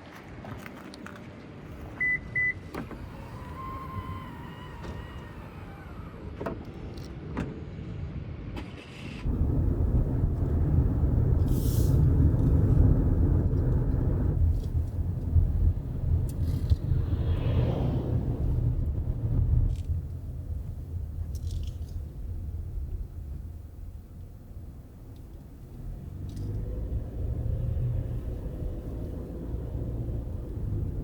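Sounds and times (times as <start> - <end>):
car engine rumble from inside: 9.2 - 31.0.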